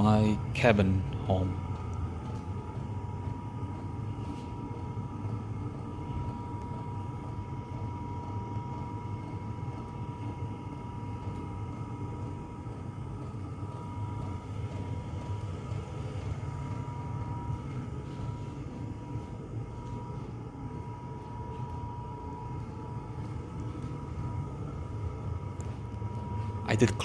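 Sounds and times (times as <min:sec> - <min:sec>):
heater burner and fan hum: 0:00.0 - 0:27.0
thin steady whine: 0:00.0 - 0:27.0.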